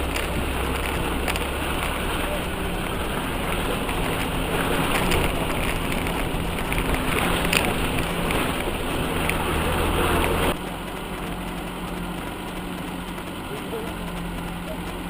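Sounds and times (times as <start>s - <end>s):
clicks: 0.0s - 15.0s
vehicle engine running: 0.0s - 15.0s.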